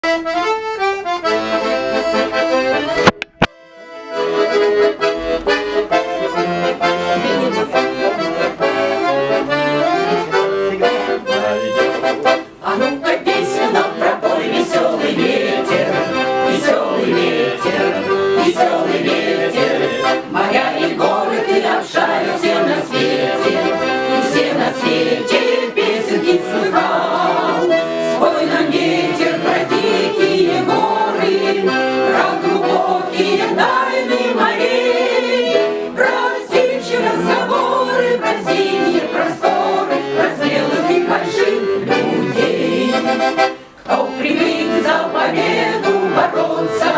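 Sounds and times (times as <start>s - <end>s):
accordion playing brisk instrumental: 0.0s - 46.9s
click: 3.0s - 3.6s.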